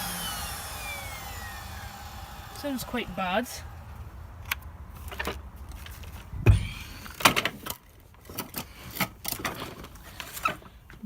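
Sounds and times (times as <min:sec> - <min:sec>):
vacuum cleaner motor humming: 0:00.0 - 0:04.2.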